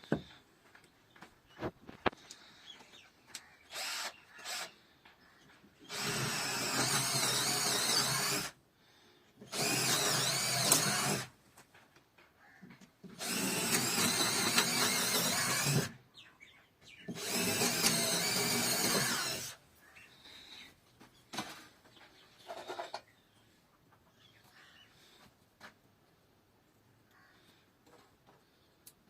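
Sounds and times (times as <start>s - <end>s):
power tool running: 5.9s - 8.5s, 9.5s - 11.3s, 13.2s - 16.0s, 17.1s - 19.6s.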